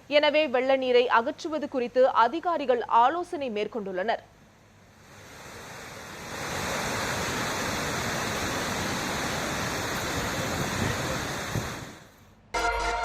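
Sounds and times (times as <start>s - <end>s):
floodwater rushing: 5.0s - 12.1s.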